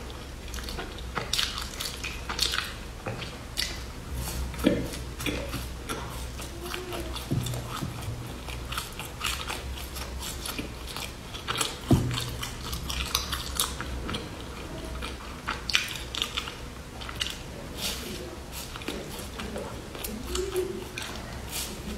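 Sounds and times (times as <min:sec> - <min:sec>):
low thumps: 0:07.1 - 0:08.7, 0:11.8 - 0:13.0.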